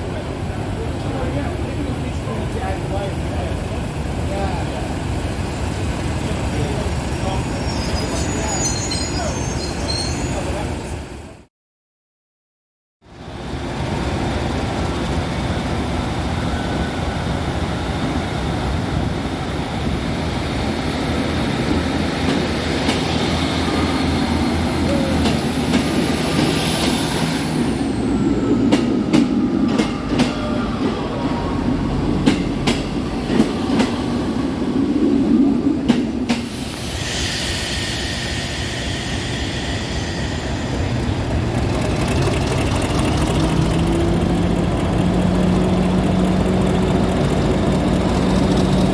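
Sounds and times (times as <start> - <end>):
diesel locomotive engine: 0.0 - 11.5, 13.1 - 48.9
wheel squeal: 7.5 - 10.6
train wheels clicking: 35.9 - 48.9.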